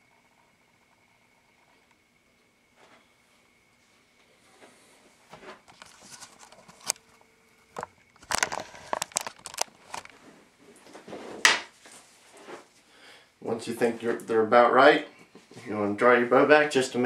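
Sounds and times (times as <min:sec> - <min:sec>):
hands handling metal pins: 0:08.2 - 0:10.2.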